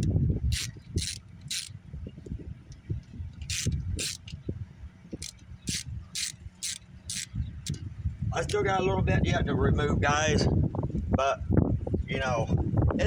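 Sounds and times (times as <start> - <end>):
socket ratchet ratcheting: 0.0 - 1.8, 3.0 - 4.4, 5.1 - 7.8.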